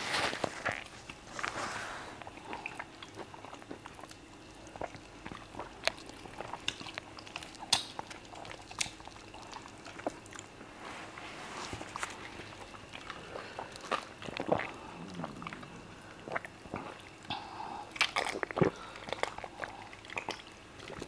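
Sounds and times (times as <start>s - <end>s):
wet chewing and lip smacks: 2.2s - 10.6s, 17.9s - 21.0s.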